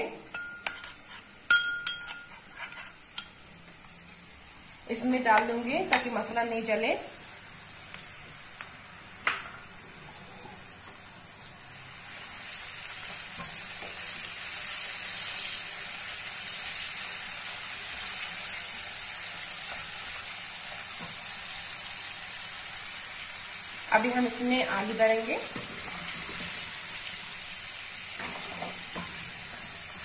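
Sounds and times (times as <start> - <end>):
sharp clink: 1.5 - 2.3
onions sizzling in hot oil: 3.0 - 30.0.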